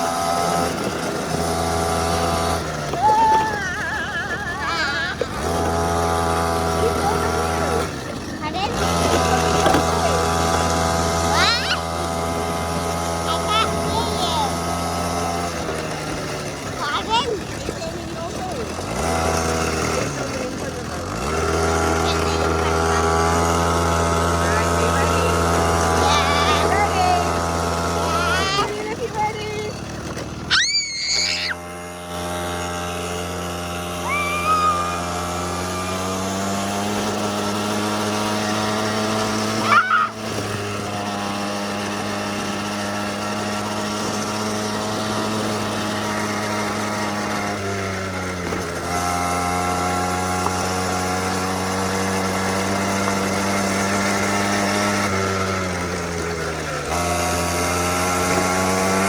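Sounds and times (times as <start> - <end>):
small petrol engine running: 0.0 - 59.0
short high squeals: 30.5 - 31.8, 33.9 - 36.4, 39.6 - 40.2.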